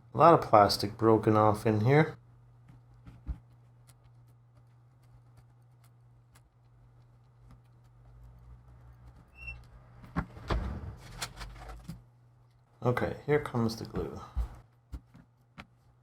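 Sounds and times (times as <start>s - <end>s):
steady low hum: 0.0s - 16.0s
brief high squeak: 9.3s - 9.6s.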